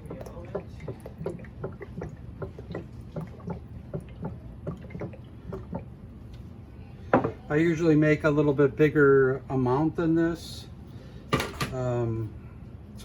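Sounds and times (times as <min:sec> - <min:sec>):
oil dripping and splashing: 0:00.0 - 0:06.0.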